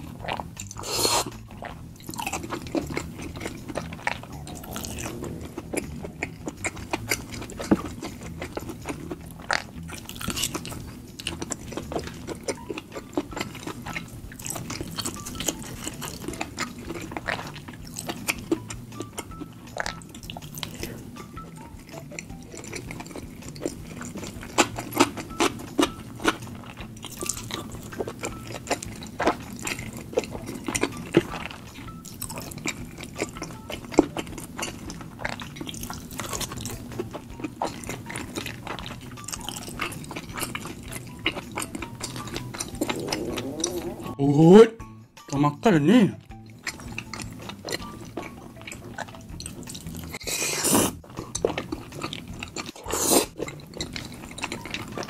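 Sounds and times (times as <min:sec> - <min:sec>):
wet mouth clicks: 0:00.0 - 0:21.2, 0:34.8 - 0:44.2, 0:46.6 - 0:55.0
person chewing chewy food: 0:00.0 - 0:55.0.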